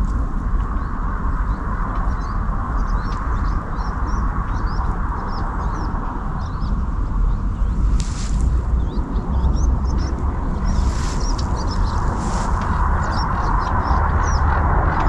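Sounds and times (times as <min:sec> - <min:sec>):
low rumble: 0:00.0 - 0:15.0
songbirds chirping: 0:00.0 - 0:15.0
steady hiss: 0:06.4 - 0:09.1, 0:09.7 - 0:13.6.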